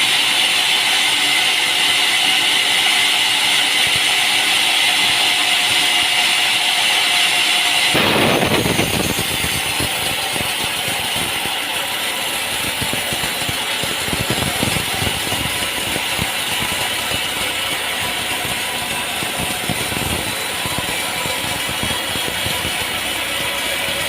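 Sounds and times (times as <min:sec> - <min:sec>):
machinery rattling: 0:07.9 - 0:24.0.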